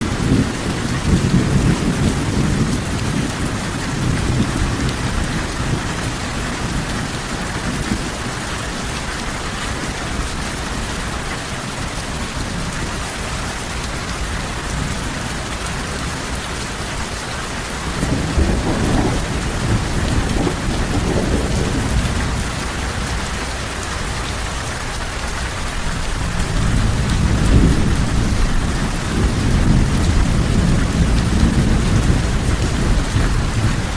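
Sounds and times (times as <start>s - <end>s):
thunder rumbling: 0.0s - 8.4s, 17.7s - 23.2s, 25.8s - 33.9s
heavy rain falling: 0.0s - 33.9s.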